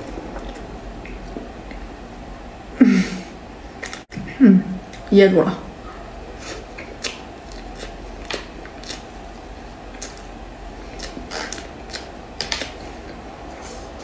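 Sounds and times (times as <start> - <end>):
chewing mouth sounds: 6.4 - 14.0.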